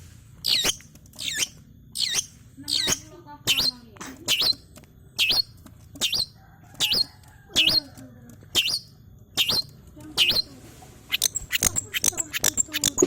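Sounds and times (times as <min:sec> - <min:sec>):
bird giving sharp call: 0:09.4 - 0:10.5.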